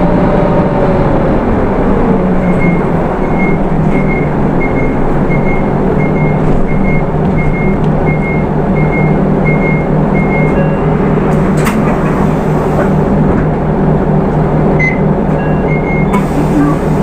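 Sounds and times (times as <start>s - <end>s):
diesel engine running: 0.0s - 17.0s
click: 11.3s - 11.9s.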